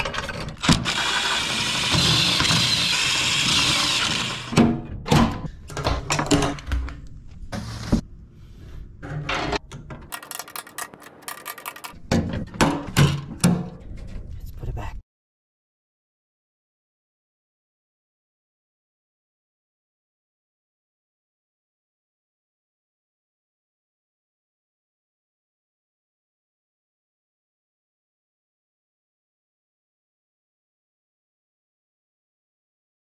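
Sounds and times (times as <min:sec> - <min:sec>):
knocks and clanks: 0:10.1 - 0:13.7.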